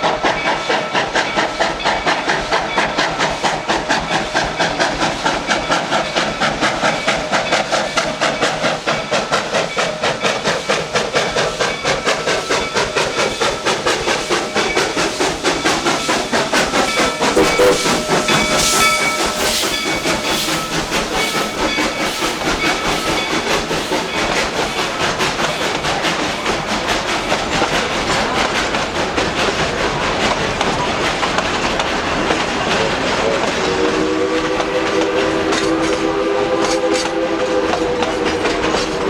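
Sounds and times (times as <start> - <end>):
steam hissing: 0.0 - 39.0
steam train clatter: 0.0 - 39.0
steady high tone: 17.4 - 20.7.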